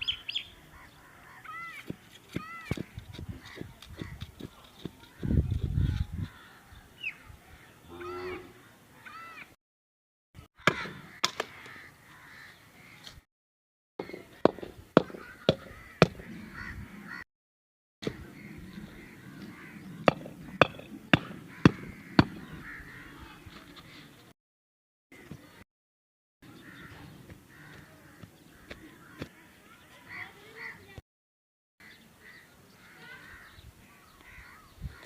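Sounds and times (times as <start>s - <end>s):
crows cawing: 0.7s - 4.2s, 6.2s - 6.8s, 10.6s - 13.2s, 14.0s - 17.2s, 18.0s - 23.4s, 26.5s - 29.5s, 30.1s - 30.9s, 31.8s - 35.0s
sharp knocks: 14.0s - 16.3s, 20.0s - 22.5s.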